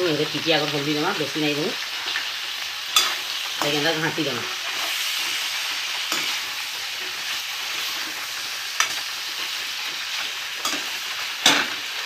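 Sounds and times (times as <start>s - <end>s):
food sizzling in a pan: 0.0s - 12.0s
spatula stirring in steel pan: 2.9s - 12.0s.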